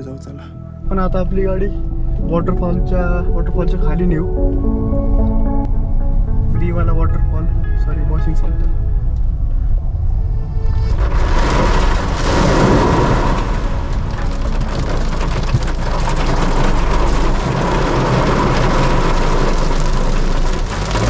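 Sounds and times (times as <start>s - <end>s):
low rumble: 0.0s - 21.0s
water pouring onto a car: 10.9s - 21.0s.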